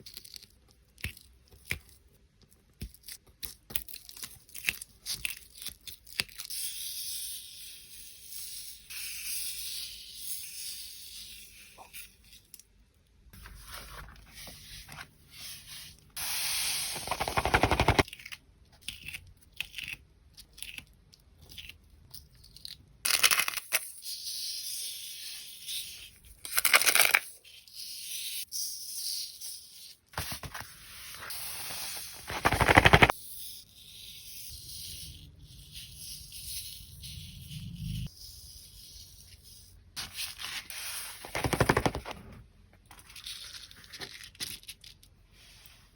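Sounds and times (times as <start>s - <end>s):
sand pouring and rubbing: 13.6s - 18.0s, 30.3s - 33.2s.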